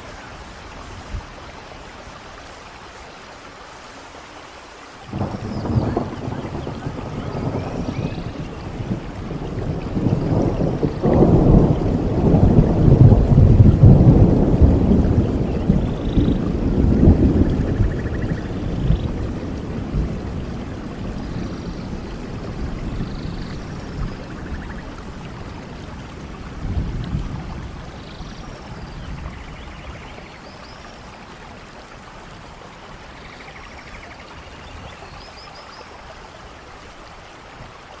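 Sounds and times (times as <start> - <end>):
rain falling: 0.0 - 38.0
low thunder rumbling: 5.1 - 35.1.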